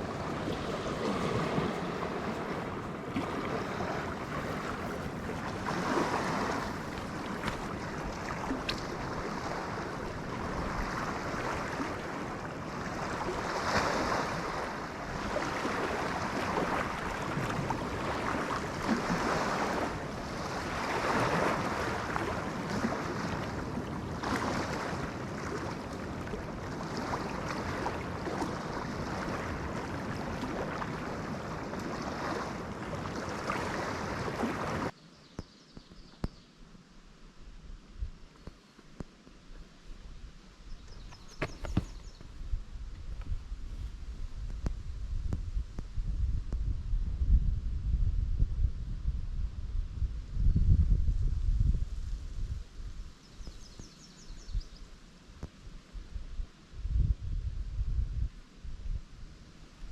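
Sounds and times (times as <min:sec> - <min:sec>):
waves washing against shore: 0:00.0 - 0:35.0.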